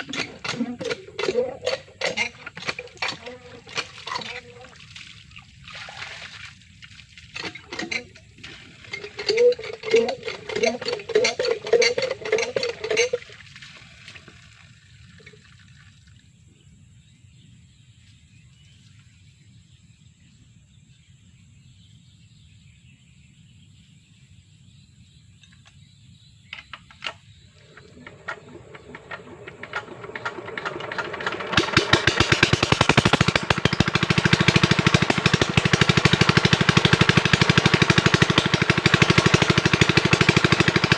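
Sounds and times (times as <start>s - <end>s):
voices: 0.0s - 4.8s
water pump engine running: 0.0s - 15.8s, 27.6s - 40.9s.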